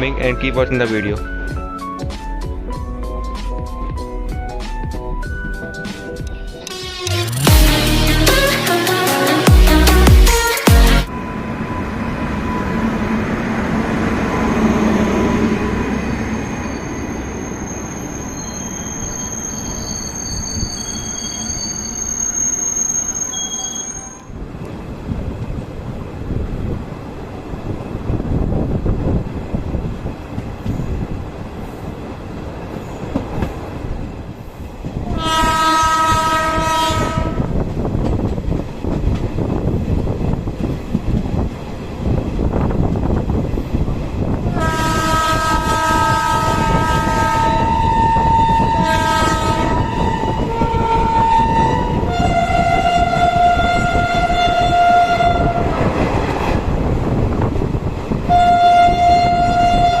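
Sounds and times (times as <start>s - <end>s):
rumble of moving train: 0.0s - 7.2s, 11.1s - 60.0s
locomotive horn: 6.6s - 11.3s, 35.0s - 37.5s, 44.5s - 55.9s, 58.3s - 60.0s.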